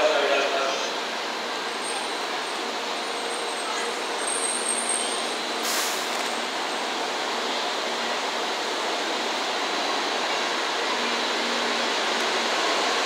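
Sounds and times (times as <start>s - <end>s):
train rushing: 0.0s - 13.0s
short hiss: 5.6s - 6.3s.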